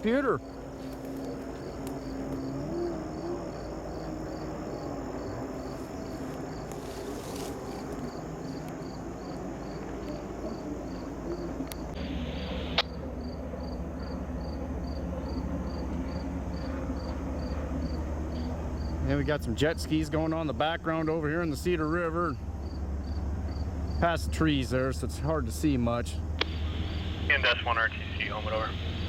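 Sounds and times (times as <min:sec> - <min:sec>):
cricket chirping: 0:00.0 - 0:29.0
sharp click: 0:12.7 - 0:13.0, 0:26.4 - 0:26.6.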